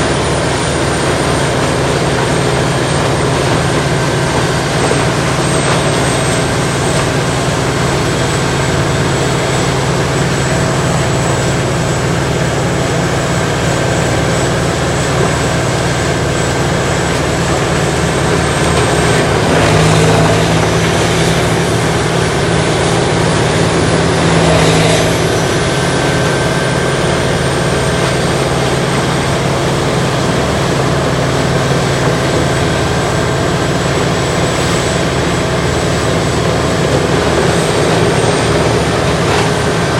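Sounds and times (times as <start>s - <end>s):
wood grinder grinding brush: 15.1s - 39.9s.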